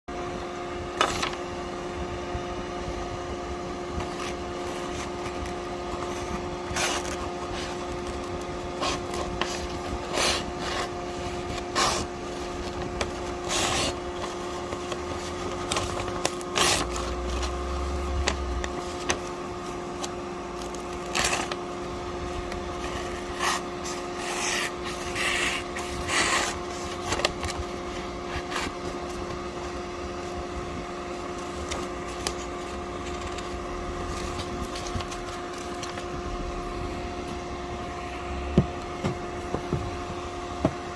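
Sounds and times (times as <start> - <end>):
steady hum: 0.1 - 40.9
scraping and rubbing strokes: 22.7 - 27.2.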